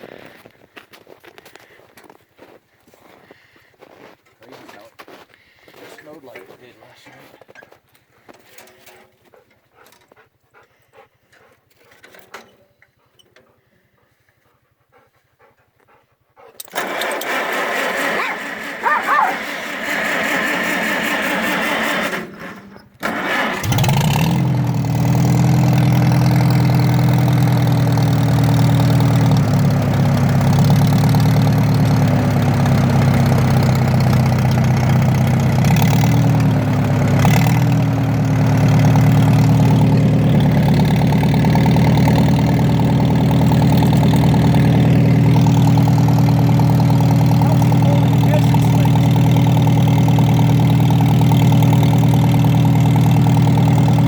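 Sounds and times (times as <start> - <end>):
tractor engine starting and running: 16.6 - 54.0.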